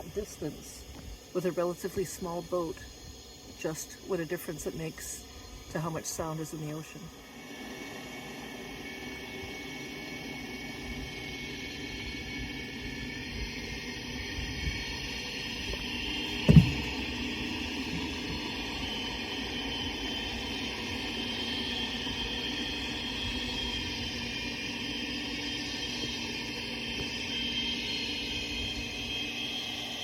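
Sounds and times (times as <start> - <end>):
underwater motorboat engine hum: 7.1 - 30.0
low thump: 16.5 - 17.1.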